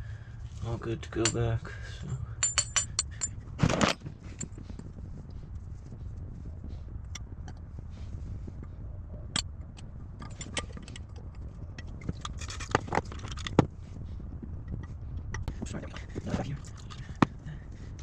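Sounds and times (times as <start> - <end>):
low hum: 0.0 - 18.0
metal parts clinking: 2.4 - 4.5.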